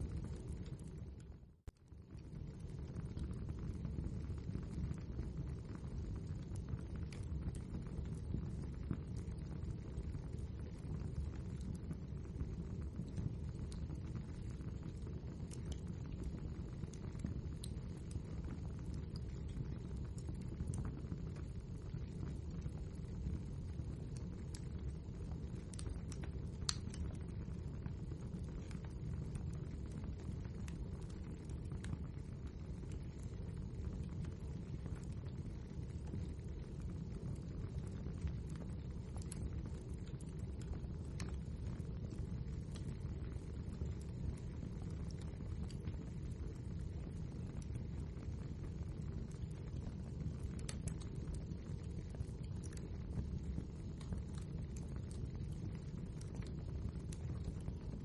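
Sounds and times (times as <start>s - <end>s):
fire rumbling with crackles: 0.0s - 58.0s.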